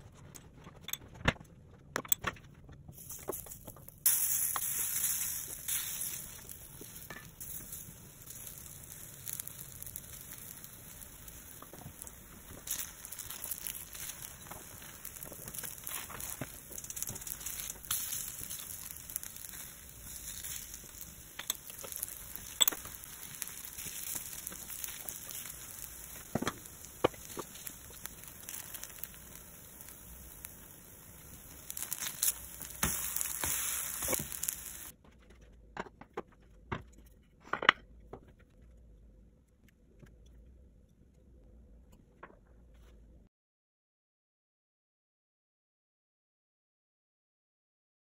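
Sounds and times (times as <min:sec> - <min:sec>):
pancakes sizzling in hot oil: 0:03.0 - 0:34.9
spatula tapping and scraping: 0:12.7 - 0:29.1, 0:31.7 - 0:38.6.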